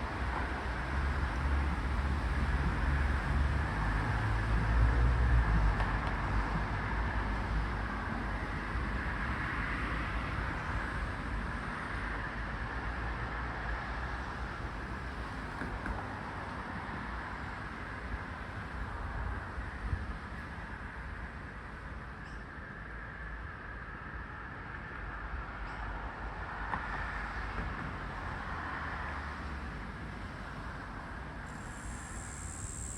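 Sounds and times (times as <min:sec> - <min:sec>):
cicada drone: 0:30.4 - 0:32.9.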